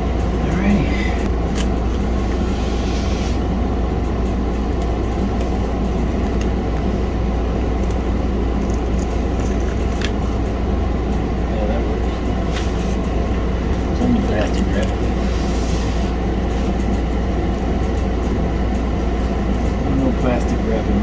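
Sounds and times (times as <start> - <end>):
low machinery rumble: 0.0 - 21.0.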